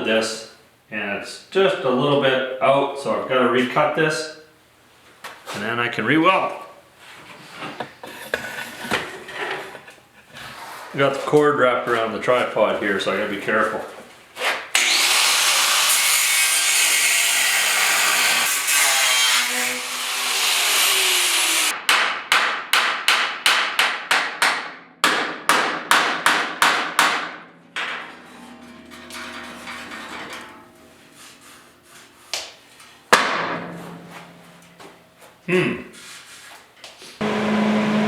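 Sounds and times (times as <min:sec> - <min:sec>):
power tool cutting sheet metal: 0:14.8 - 0:21.8, 0:37.2 - 0:38.0.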